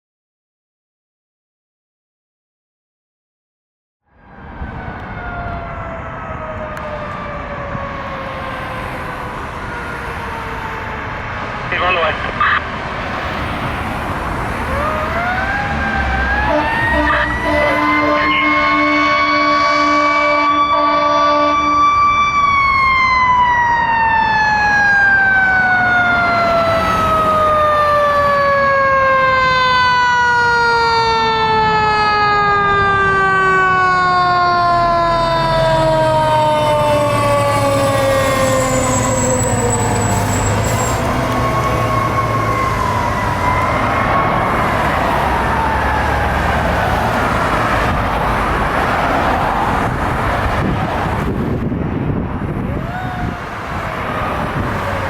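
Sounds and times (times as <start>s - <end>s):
wailing siren: 4.0s - 55.0s
siren winding down: 4.1s - 12.7s, 14.4s - 51.4s, 52.5s - 55.0s
heavy diesel engine passing: 4.6s - 22.3s, 31.4s - 55.0s.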